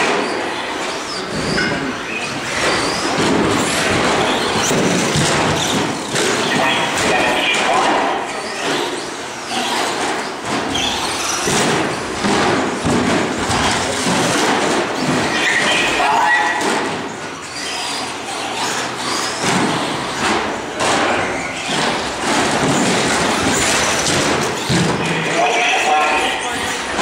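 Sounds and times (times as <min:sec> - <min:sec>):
trucks thumping: 0:00.0 - 0:27.0
voices chattering in echoing hall: 0:00.0 - 0:27.0
toy truck motors whining: 0:17.4 - 0:20.2.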